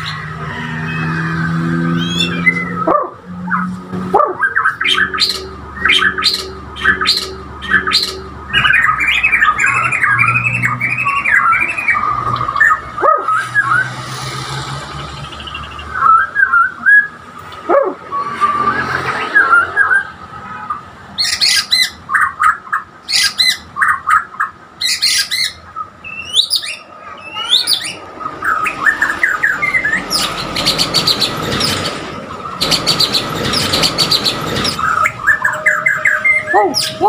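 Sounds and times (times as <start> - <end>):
songbird singing whistled notes: 24.8 - 31.4.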